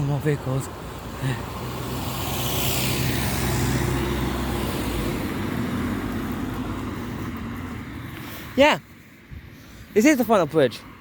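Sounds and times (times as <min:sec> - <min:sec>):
road vehicle driving past: 0:00.7 - 0:08.6.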